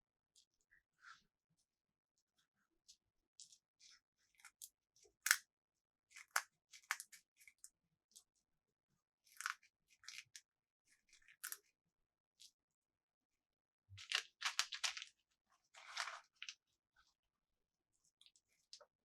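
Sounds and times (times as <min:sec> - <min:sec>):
packaging crinkles and clicks: 0:14.1 - 0:15.1.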